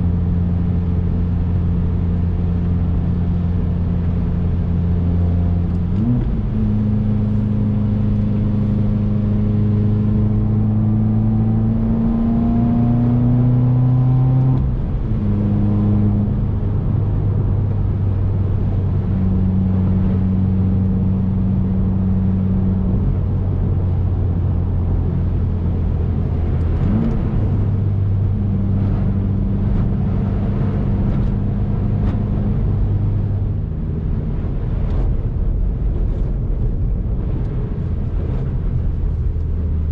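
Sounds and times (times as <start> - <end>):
car engine running: 0.0 - 39.9
road noise: 0.0 - 39.9.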